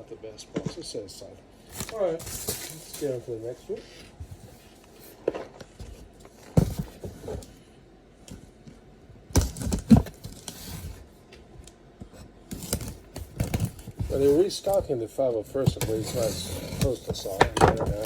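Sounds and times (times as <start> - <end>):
cardboard boxes knocking and scraping: 1.7 - 3.2, 4.1 - 7.6, 9.3 - 11.1, 12.2 - 18.0.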